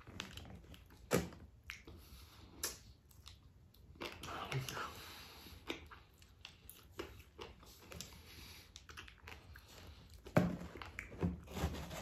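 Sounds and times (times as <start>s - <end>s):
chewing crunchy fried chicken: 5.4s - 11.1s
hands rustling in cardboard box: 10.3s - 12.0s.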